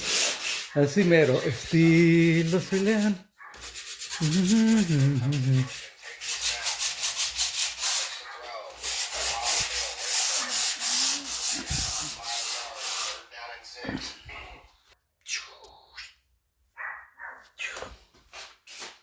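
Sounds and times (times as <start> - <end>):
sanding drywall compound: 0.0 - 13.3.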